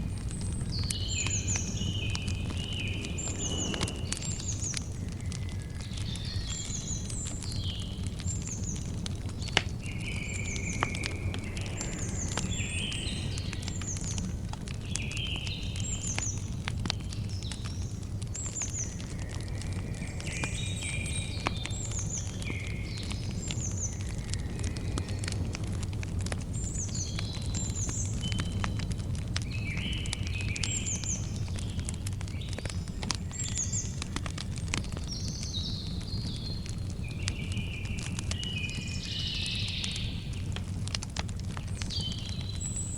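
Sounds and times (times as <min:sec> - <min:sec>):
campfire crackling and popping: 0:00.0 - 0:42.9
birds chirping: 0:00.2 - 0:16.3.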